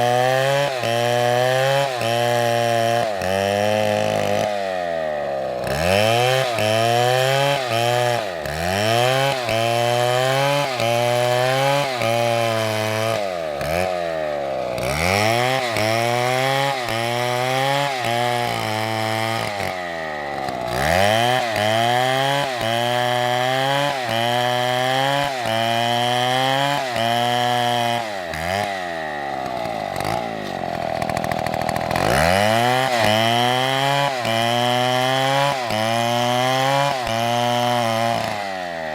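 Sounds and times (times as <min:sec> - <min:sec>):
chainsaw running under load: 0:00.0 - 0:38.9.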